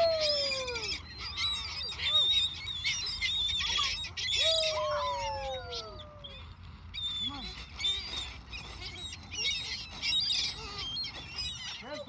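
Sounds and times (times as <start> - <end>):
long falling gull calls: 0.0 - 1.1, 3.7 - 6.4
seagulls calling: 0.0 - 12.0.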